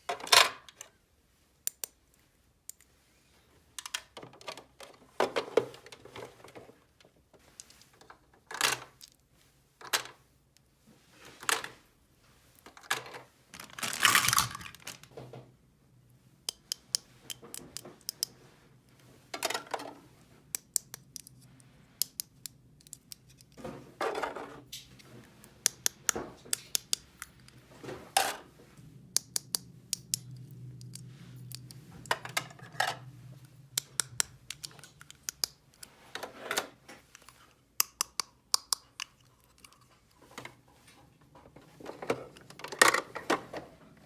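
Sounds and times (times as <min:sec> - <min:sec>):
plastic pieces scraping: 0:12.7 - 0:15.2
plastic toy pieces clicking: 0:13.6 - 0:15.0, 0:20.6 - 0:21.4, 0:22.0 - 0:23.6, 0:25.6 - 0:27.5, 0:29.2 - 0:32.2, 0:33.7 - 0:35.9, 0:37.2 - 0:39.7.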